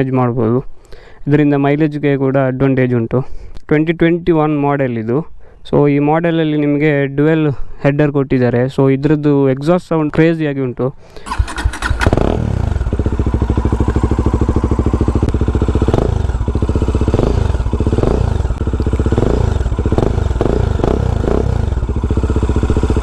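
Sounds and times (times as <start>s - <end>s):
motorcycle engine starting: 11.2s - 23.0s
motorcycle engine idling: 11.3s - 23.0s
motorcycle engine revving: 11.3s - 23.0s.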